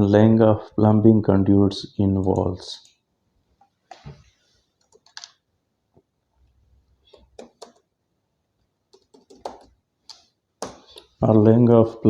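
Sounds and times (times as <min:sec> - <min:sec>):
faint keyboard typing: 0:02.2 - 0:03.0, 0:04.7 - 0:05.5, 0:07.0 - 0:07.9, 0:08.9 - 0:11.1.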